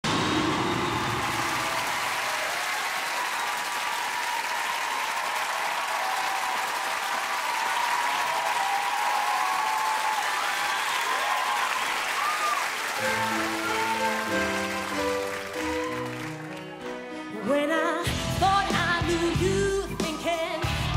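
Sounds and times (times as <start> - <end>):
audience applauding and cheering: 0.0 - 17.4
band instrumental intro: 13.0 - 17.4, 18.1 - 20.9.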